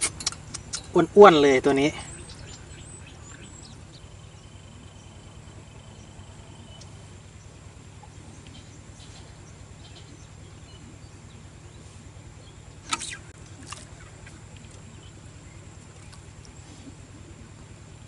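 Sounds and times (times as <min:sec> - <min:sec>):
low steady hum: 0:00.0 - 0:18.0
short bird chirps: 0:12.8 - 0:13.4.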